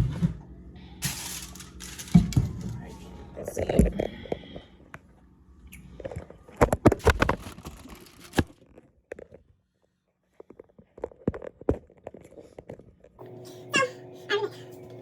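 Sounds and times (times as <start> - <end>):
kitchen knocks and clatters: 1.0 - 2.9.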